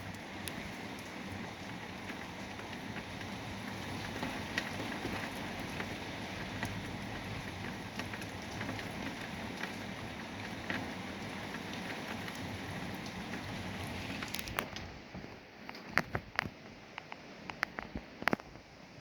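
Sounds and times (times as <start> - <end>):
heavy rain pouring: 0.0 - 15.2.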